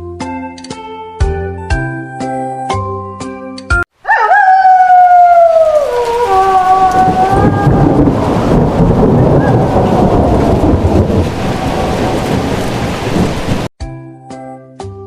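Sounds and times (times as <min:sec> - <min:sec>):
heavy rain: 0:04.9 - 0:13.7
rumbling thunder: 0:06.5 - 0:13.7.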